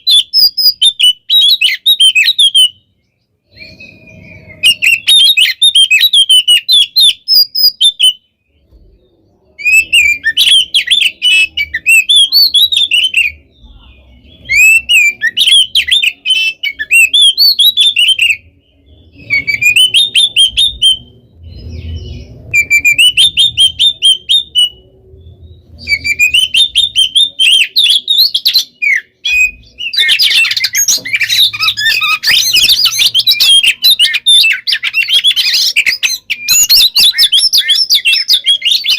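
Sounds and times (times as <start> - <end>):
magpie-robin singing: 0.0 - 38.9.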